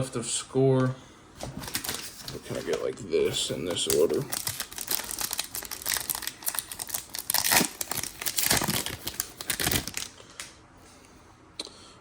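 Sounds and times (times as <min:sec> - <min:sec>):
plastic wrapper crinkling: 0:01.5 - 0:10.5.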